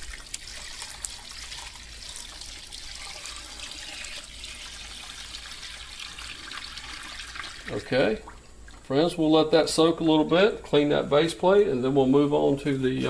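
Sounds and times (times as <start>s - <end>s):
liquid pouring into plastic jug: 0.0s - 9.0s
liquid splashing and trickling: 0.0s - 9.0s.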